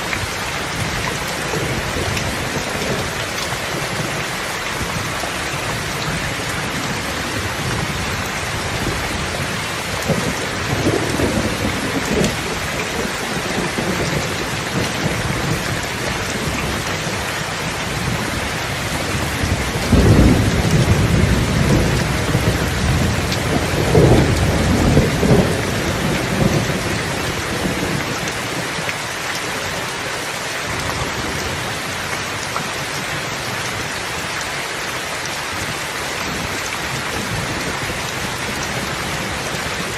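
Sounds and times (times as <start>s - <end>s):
heavy rain falling: 0.0s - 39.9s
rolling thunder: 6.0s - 17.2s, 18.9s - 28.2s.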